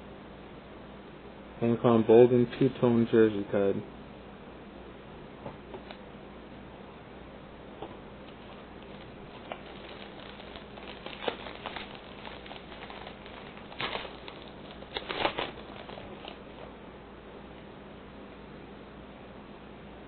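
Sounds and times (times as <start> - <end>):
trading cards rustling: 8.2 - 16.7.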